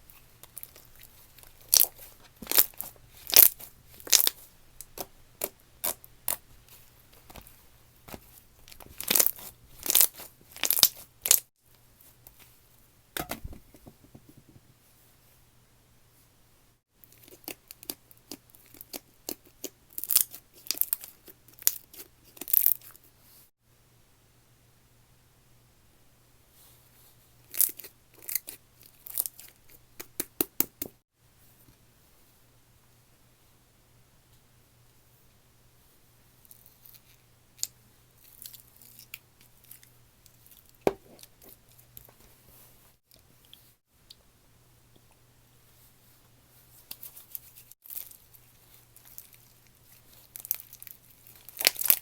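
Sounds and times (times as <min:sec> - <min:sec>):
slime popping and crackling: 0:01.6 - 0:06.4, 0:08.7 - 0:11.5, 0:50.4 - 0:52.0.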